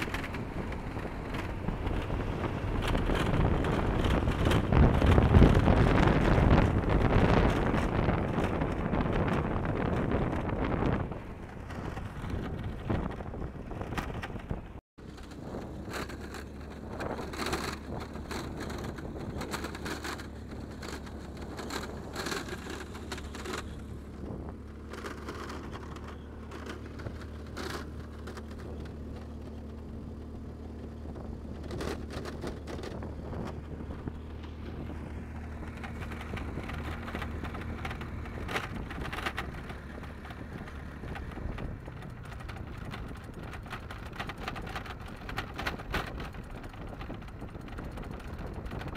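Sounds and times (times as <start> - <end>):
low engine hum: 0.0 - 48.9
wildfire crackling and popping: 24.5 - 48.9.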